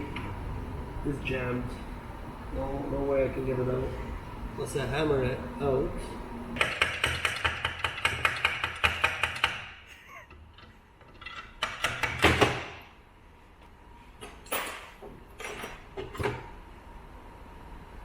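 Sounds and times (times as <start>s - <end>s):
hammer tapping on metal: 6.6s - 9.7s.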